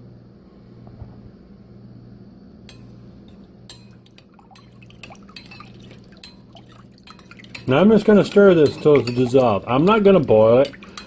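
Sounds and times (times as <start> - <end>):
steady low hum: 0.0 - 11.0
liquid sloshing in a container: 4.0 - 11.0.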